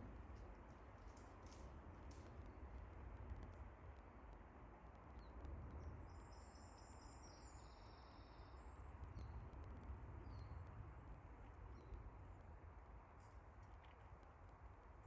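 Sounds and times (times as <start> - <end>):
faint birdsong: 5.2 - 9.3.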